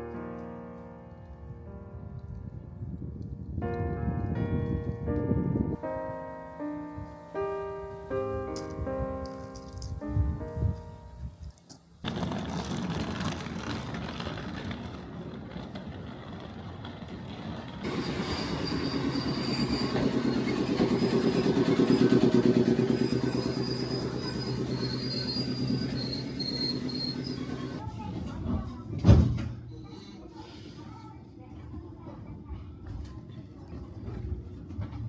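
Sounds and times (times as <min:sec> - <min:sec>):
train rumbling on rails: 0:07.0 - 0:35.0
wheel squeal: 0:12.1 - 0:27.8.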